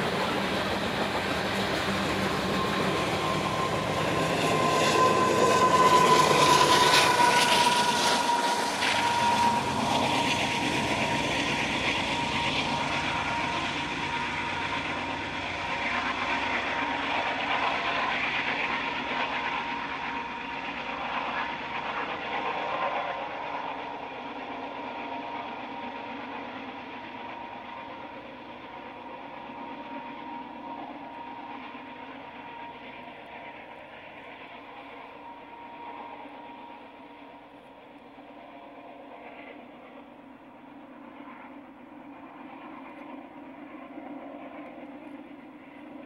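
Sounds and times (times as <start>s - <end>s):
high wheel squeal: 0.0s - 15.7s.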